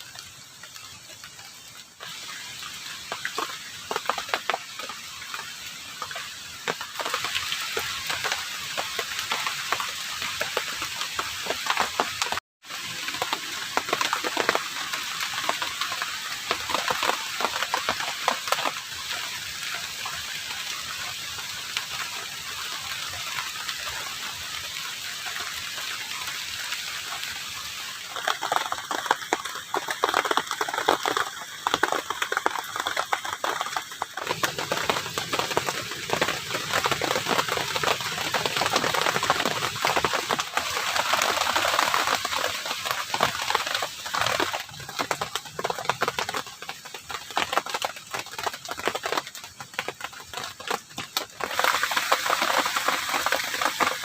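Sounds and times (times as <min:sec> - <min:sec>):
heavy rain falling: 0:00.0 - 0:54.0
dense irregular tapping and crackling: 0:13.0 - 0:19.1, 0:27.5 - 0:54.0.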